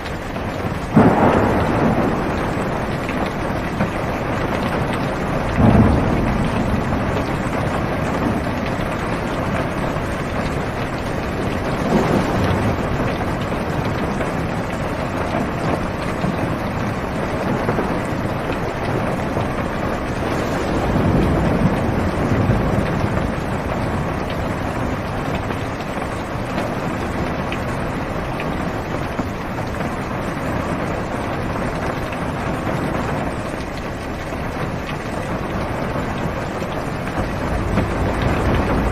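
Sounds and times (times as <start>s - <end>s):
heavy rain drumming on car roof: 0.0s - 38.9s
low rumble: 19.0s - 26.3s, 36.7s - 38.9s.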